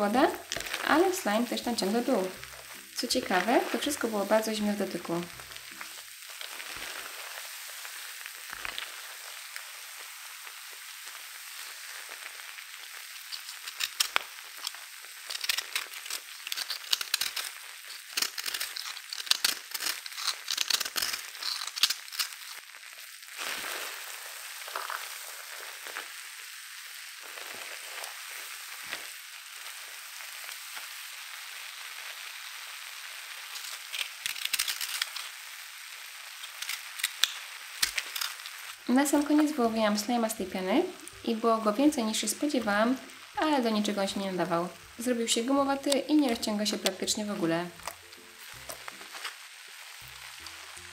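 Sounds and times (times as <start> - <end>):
bath bomb fizzing: 0.0 - 35.5
crunching and crackling: 0.1 - 9.7, 12.0 - 26.2, 27.2 - 31.0, 33.1 - 50.9.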